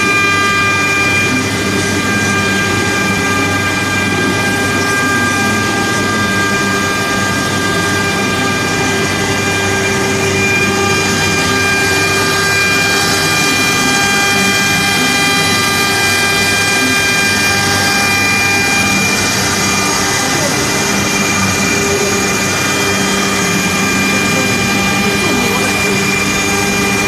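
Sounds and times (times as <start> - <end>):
cnc router spindle whine: 0.0 - 27.0.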